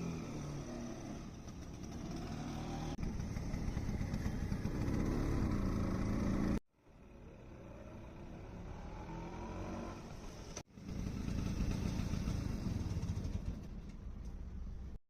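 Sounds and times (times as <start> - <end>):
scooter engine revving: 0.0 - 6.6, 10.7 - 13.9.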